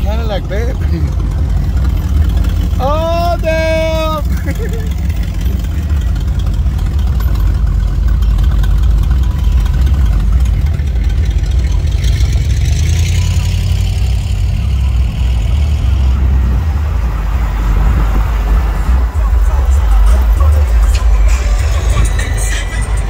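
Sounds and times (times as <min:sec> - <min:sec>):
car engines rumbling: 0:00.0 - 0:23.0.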